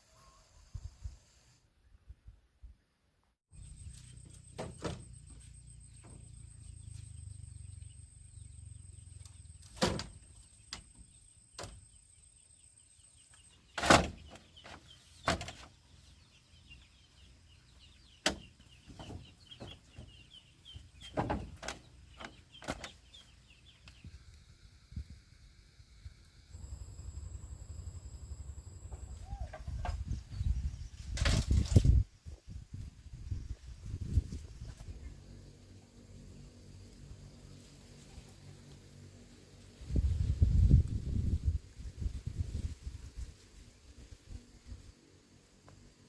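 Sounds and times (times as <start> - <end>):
knocks and thuds: 4.5 - 5.3, 21.1 - 22.9.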